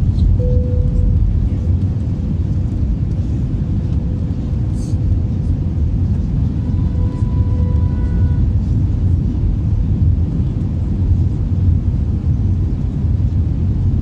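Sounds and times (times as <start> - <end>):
jet airliner rumble: 0.0 - 14.0
higher tone: 0.3 - 1.3.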